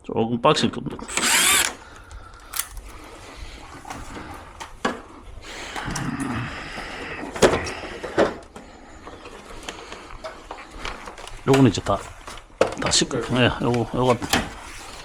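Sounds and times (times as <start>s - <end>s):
plastic parts clicking and knocking: 1.1s - 3.0s.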